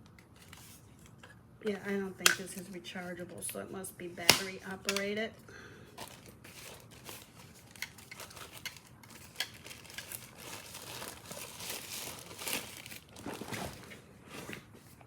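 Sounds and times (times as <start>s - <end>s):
wrapping crinkling and rustling: 5.9s - 15.0s.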